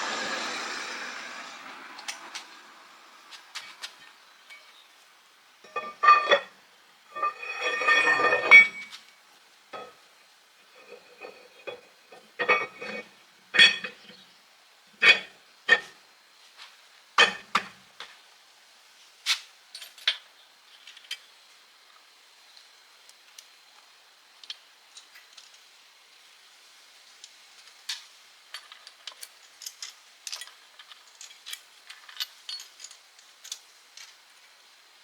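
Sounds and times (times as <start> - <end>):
metal tools clinking and clanking: 5.7 - 6.5, 7.1 - 9.0, 9.8 - 10.0, 10.7 - 14.2, 15.0 - 15.9, 17.2 - 17.7, 28.5 - 34.2.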